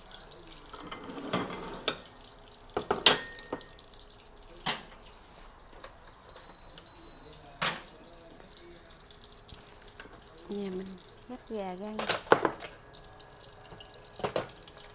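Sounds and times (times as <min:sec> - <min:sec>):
dishes and utensils clinking: 0:00.7 - 0:03.8, 0:05.7 - 0:07.9, 0:12.0 - 0:12.8, 0:13.7 - 0:14.9.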